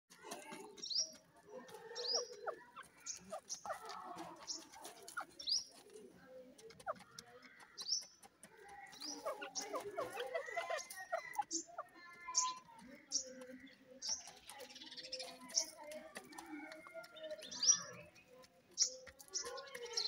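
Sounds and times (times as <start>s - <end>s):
birds scratching and pecking soil: 0.1s - 20.0s.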